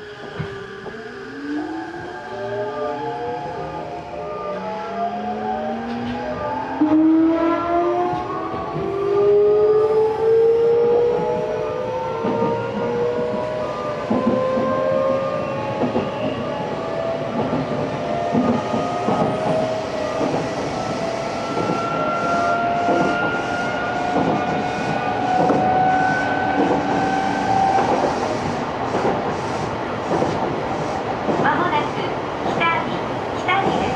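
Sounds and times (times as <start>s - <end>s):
train wheels rumbling: 12.1s - 33.9s.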